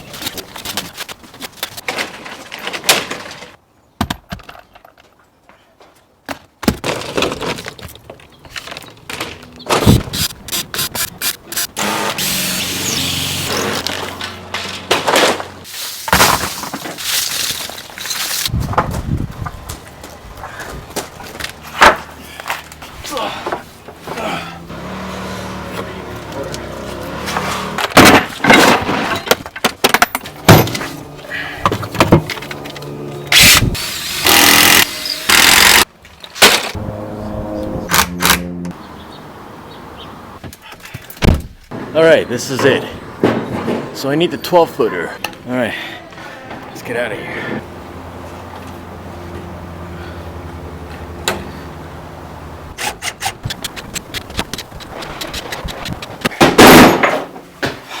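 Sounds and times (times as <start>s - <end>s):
power tool motor running: 10.2s - 14.0s, 32.5s - 35.8s.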